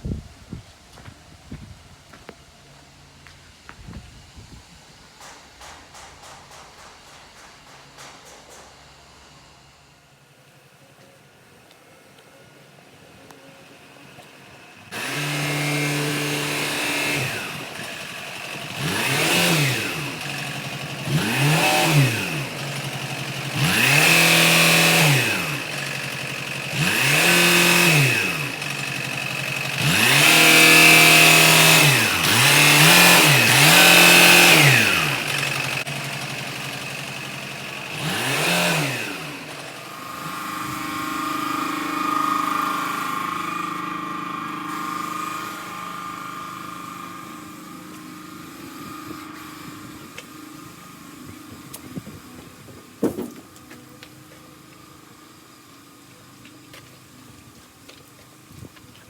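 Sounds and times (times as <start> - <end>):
truck engine idling: 5.0 - 59.0
truck engine revving: 14.8 - 53.6.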